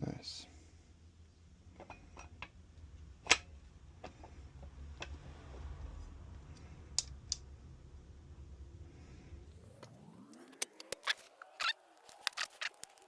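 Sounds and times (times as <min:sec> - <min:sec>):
low steady hum: 0:00.0 - 0:13.0
engine parts and tools clicking: 0:09.6 - 0:13.0.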